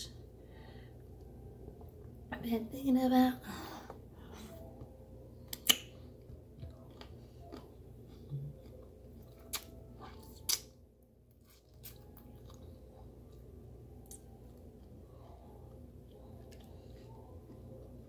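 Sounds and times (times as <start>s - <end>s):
wet lip and finger clicks: 5.5s - 6.0s, 9.4s - 9.8s, 10.4s - 10.7s
person chewing food: 5.5s - 18.0s.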